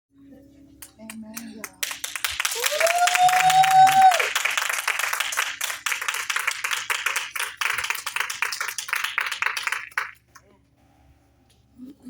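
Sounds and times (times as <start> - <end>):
crowd clapping: 0.8 - 10.4.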